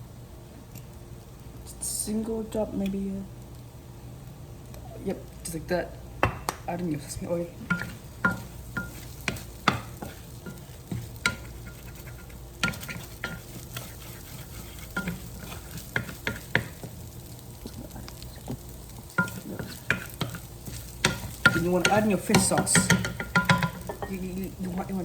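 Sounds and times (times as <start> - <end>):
rice sizzling in a hot pan: 0.0 - 25.0
spatula scraping and knocking pan: 6.2 - 25.0.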